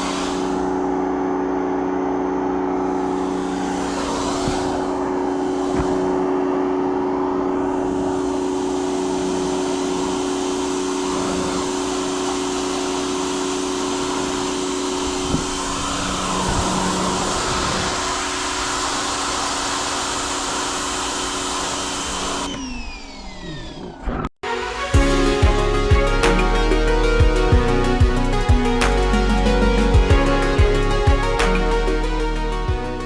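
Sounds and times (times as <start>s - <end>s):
pressure washer motor whine: 0.0s - 23.7s.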